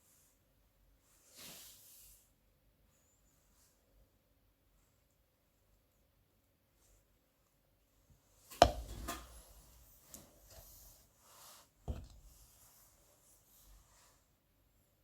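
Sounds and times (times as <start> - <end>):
knife knocking on cutting board: 8.6 - 9.2, 11.9 - 12.2.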